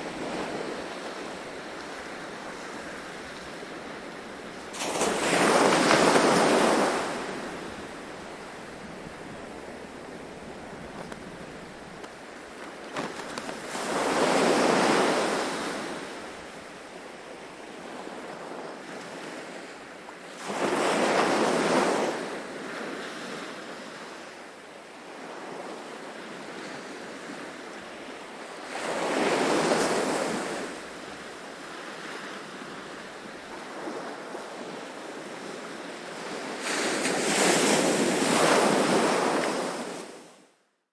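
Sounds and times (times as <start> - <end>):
ocean waves washing: 0.0 - 16.5
surf hiss: 0.0 - 17.6.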